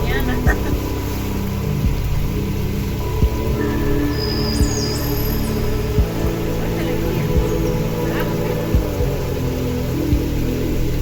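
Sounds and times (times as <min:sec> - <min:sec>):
rain hiss: 0:00.0 - 0:11.0
soft low held music: 0:00.0 - 0:11.0.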